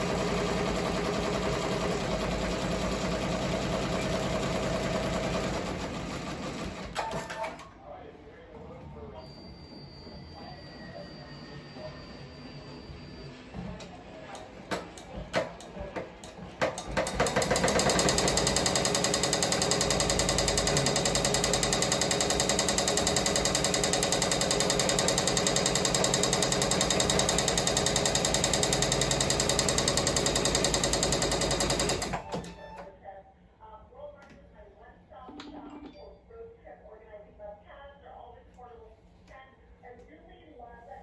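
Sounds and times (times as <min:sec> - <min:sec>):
machine clicks and knocks: 0:14.4 - 0:32.5
embroidery machine clattering: 0:14.4 - 0:32.6.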